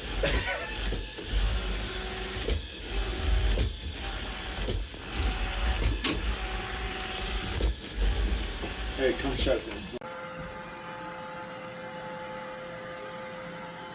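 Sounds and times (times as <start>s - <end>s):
robot vacuum motor hum: 0.0s - 10.7s.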